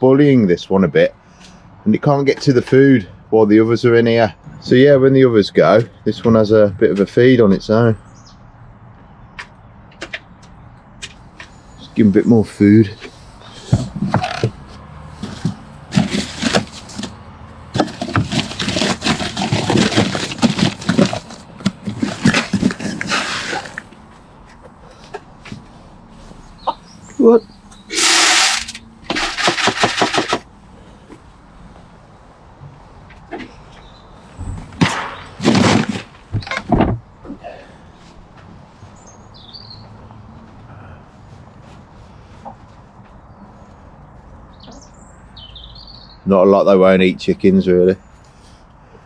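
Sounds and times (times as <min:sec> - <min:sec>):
food scraps scraping and rustling: 0:13.1 - 0:24.0, 0:27.9 - 0:30.4, 0:35.2 - 0:36.2
small bird chirping: 0:26.4 - 0:28.0, 0:44.5 - 0:46.2.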